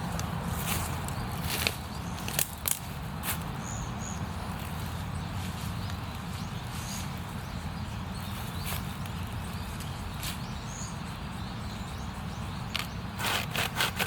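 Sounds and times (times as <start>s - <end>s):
small bird chirping: 3.6s - 13.3s.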